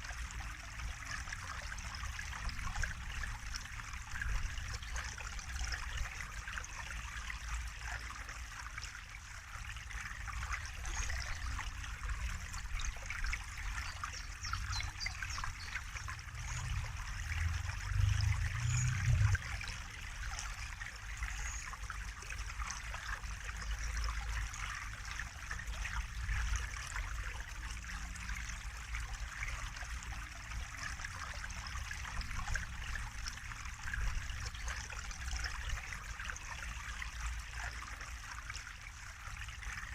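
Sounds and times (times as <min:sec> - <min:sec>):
small splashes and drips: 0:00.0 - 0:39.9
water trickling: 0:00.0 - 0:39.9
low rumble: 0:16.1 - 0:19.7.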